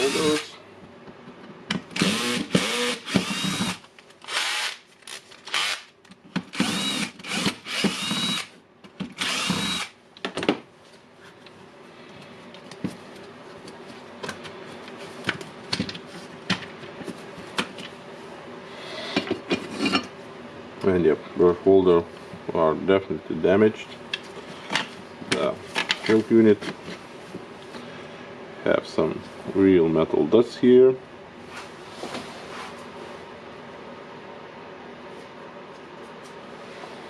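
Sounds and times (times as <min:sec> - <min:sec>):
electric screwdriver whining: 0:00.0 - 0:00.5, 0:02.0 - 0:04.8, 0:05.5 - 0:05.9, 0:06.6 - 0:08.5, 0:09.2 - 0:09.9.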